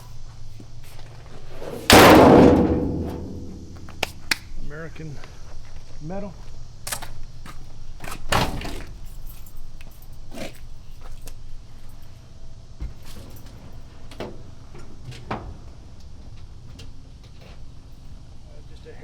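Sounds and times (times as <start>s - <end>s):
keys jangling: 9.0s - 10.2s.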